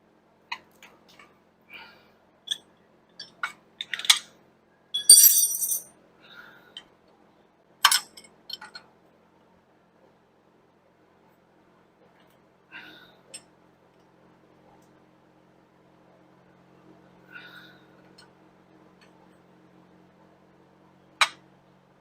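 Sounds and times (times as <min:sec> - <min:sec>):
metal hand tools clinking: 0:05.0 - 0:05.9.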